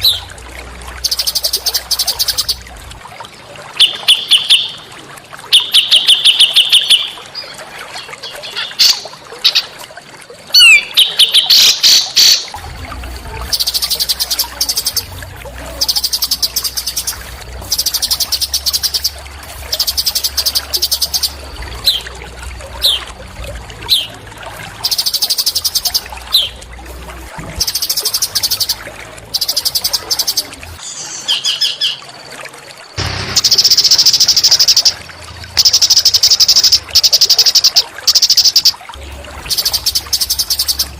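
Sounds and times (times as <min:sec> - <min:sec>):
songbirds buzzy chattering: 0:00.0 - 0:03.0, 0:10.5 - 0:32.2, 0:33.0 - 0:40.9.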